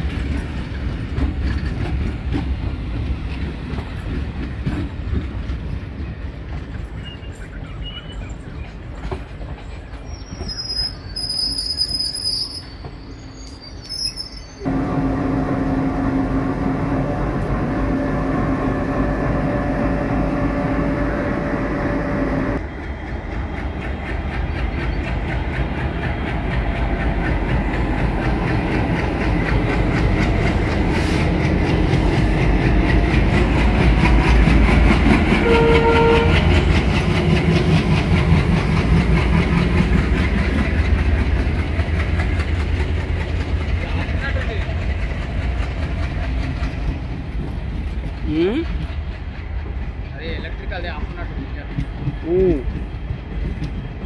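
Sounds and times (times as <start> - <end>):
diesel locomotive rumble: 14.5 - 54.0
drawn-out steady tone: 14.6 - 22.6.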